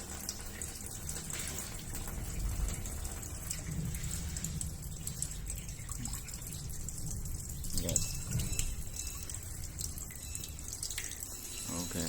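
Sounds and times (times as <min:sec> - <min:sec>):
water running from outlet: 0:00.0 - 0:12.0.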